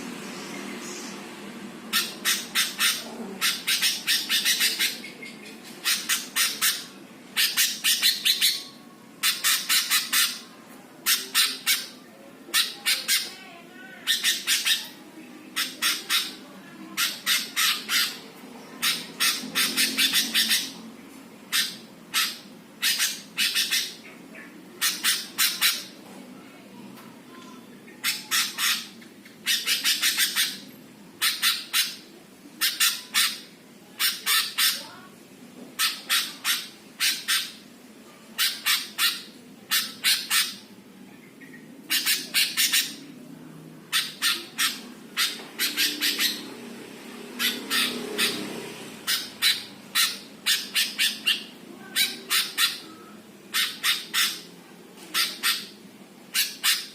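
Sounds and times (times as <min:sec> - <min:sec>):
bird calling harsh notes: 0:01.9 - 0:10.4, 0:43.9 - 0:46.5, 0:47.4 - 0:54.5.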